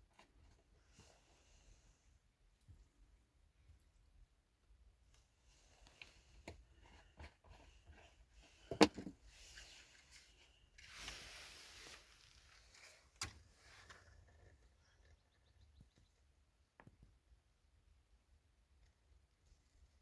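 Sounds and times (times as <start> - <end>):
short hissing rustle: 10.8 - 13.0.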